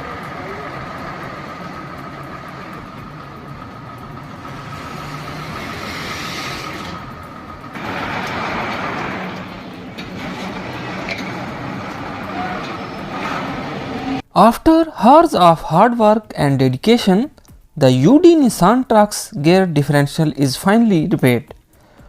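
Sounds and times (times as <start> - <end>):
heavy vehicle engine running: 0.0 - 14.3
road and traffic noise: 0.0 - 14.3.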